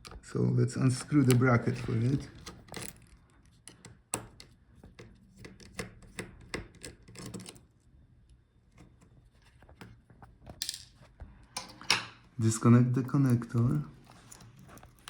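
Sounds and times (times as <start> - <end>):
screwdriver clicking and scraping: 1.0 - 7.7.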